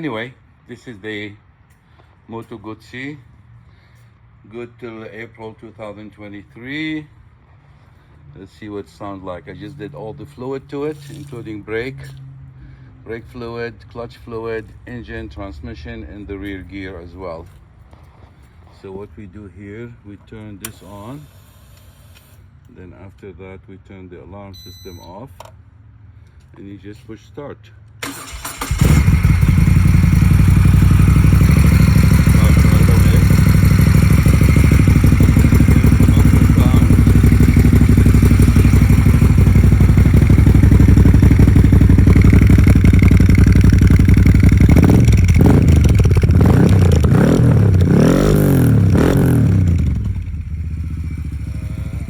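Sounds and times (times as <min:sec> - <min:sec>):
engine throttle blips: 0:28.0 - 0:52.0
motorcycle engine idling: 0:28.0 - 0:52.0.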